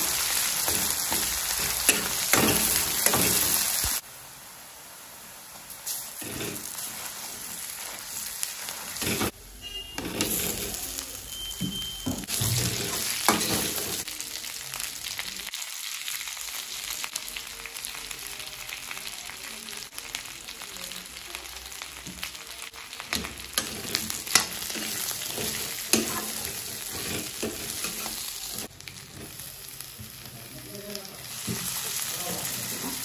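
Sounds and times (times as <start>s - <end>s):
food sizzling in hot oil: 0.0s - 33.0s
metal ladle scraping pan: 6.2s - 7.0s, 8.9s - 11.0s, 12.1s - 14.0s, 23.5s - 28.7s.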